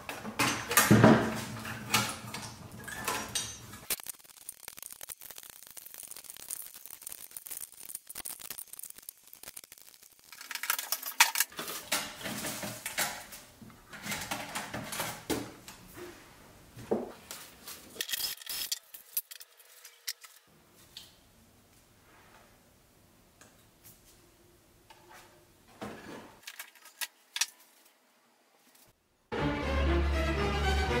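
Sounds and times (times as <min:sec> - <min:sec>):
metallic clinks and rattles: 0:02.8 - 0:11.5.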